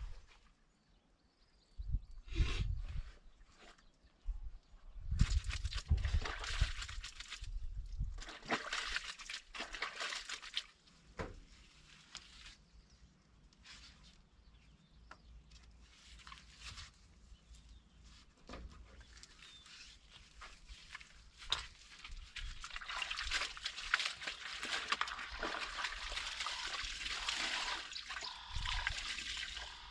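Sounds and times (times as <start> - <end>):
water sloshing and splashing: 5.2 - 10.8, 20.2 - 29.9.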